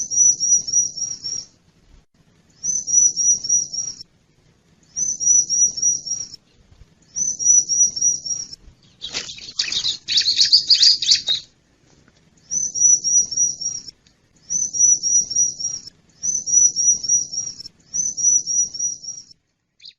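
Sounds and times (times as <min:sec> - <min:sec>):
bird high-pitched notes: 0:07.2 - 0:11.5
bird harsh chattering: 0:09.0 - 0:11.5.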